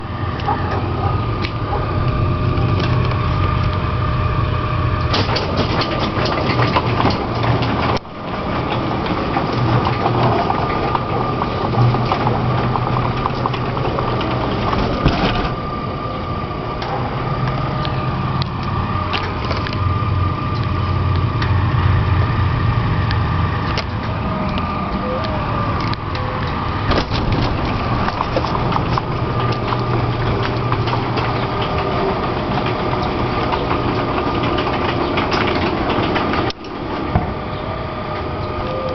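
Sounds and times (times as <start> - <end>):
garage door opener motor: 0.0 - 38.9
door rattling and clicking: 5.0 - 15.7, 26.8 - 37.3.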